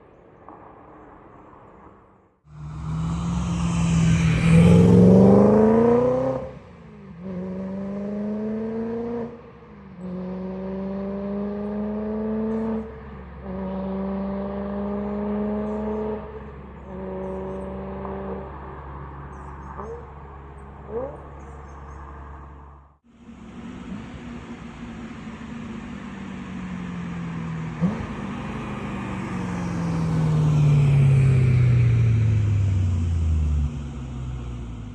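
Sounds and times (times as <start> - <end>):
car engine revving: 2.5 - 34.9.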